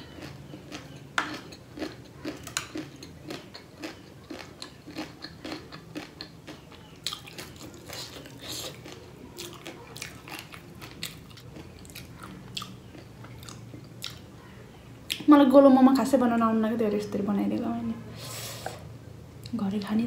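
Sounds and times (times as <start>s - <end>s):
chewing crunchy snack: 0.0s - 14.3s.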